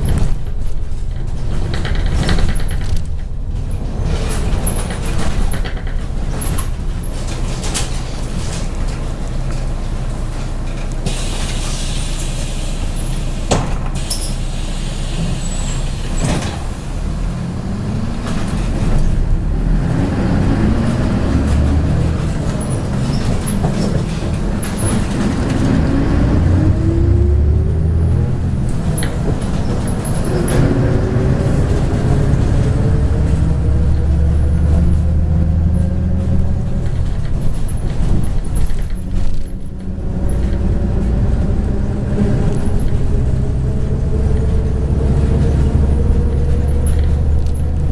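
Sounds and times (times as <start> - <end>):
rattles and clicks: 0.0 - 11.6, 20.8 - 25.9, 28.6 - 30.8, 36.2 - 43.2, 45.2 - 47.9
bus diesel engine accelerating: 0.0 - 47.9.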